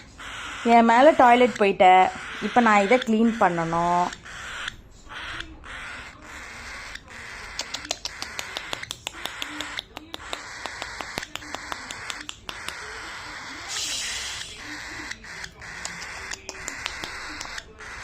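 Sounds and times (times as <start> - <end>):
cockatiel chattering and calling: 0.0 - 18.0
sharp little clicks: 7.5 - 12.8.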